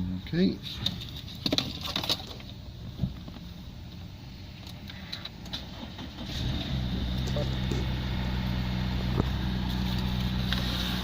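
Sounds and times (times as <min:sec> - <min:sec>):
car engine running: 0:06.0 - 0:11.0.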